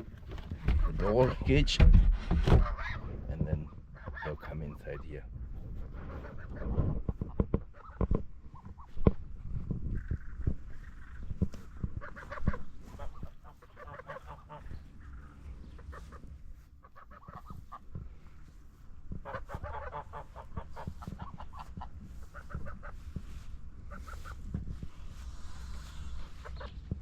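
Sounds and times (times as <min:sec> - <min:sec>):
low knocks and rumble: 0:00.0 - 0:03.8
ducks quacking: 0:02.4 - 0:05.2, 0:05.8 - 0:27.0.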